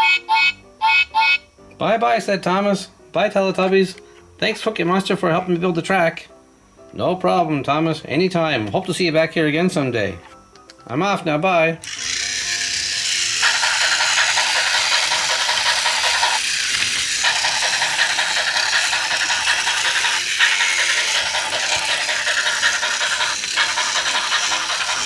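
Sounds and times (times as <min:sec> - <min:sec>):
toy train rattling on track: 0:11.8 - 0:25.0.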